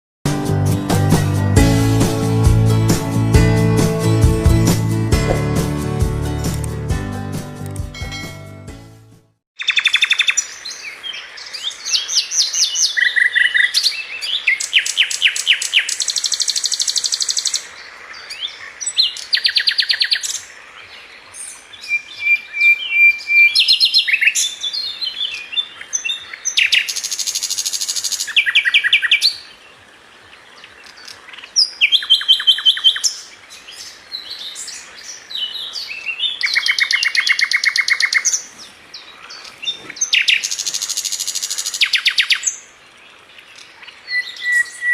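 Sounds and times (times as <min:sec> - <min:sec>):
small bird singing trills: 0:43.6 - 0:44.9.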